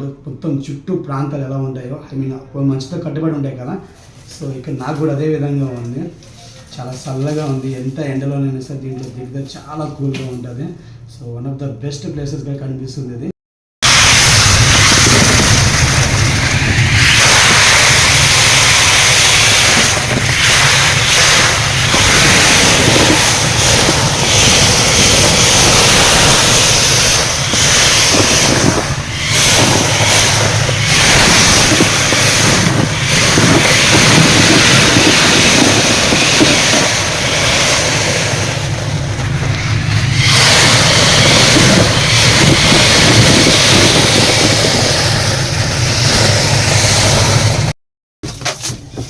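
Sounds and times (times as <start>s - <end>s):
engine running: 13.8s - 47.7s
loud continuous rushing hiss: 13.8s - 47.7s.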